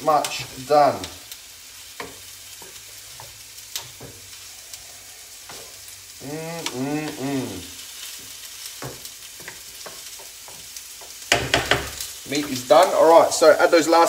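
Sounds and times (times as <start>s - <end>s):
meat sizzling in a frying pan: 0.0s - 14.0s
wooden spoon scraping a pan: 2.0s - 13.0s
man making wordless syllables: 6.2s - 7.8s.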